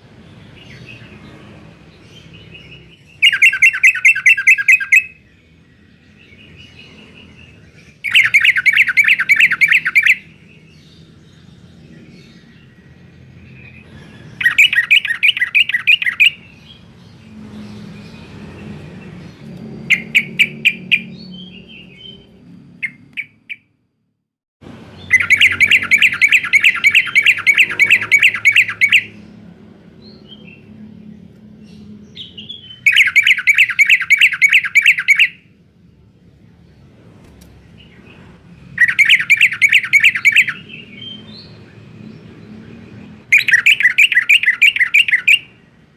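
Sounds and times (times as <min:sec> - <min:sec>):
bulbul chattering song: 0:02.0 - 0:18.1, 0:19.8 - 0:23.8, 0:24.8 - 0:29.4, 0:31.6 - 0:35.6, 0:38.6 - 0:45.9.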